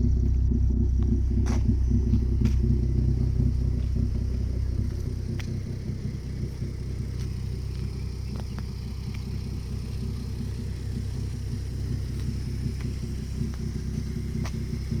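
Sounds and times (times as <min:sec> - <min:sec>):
car engine idling: 0:00.0 - 0:15.0
faint ticks: 0:06.5 - 0:10.2.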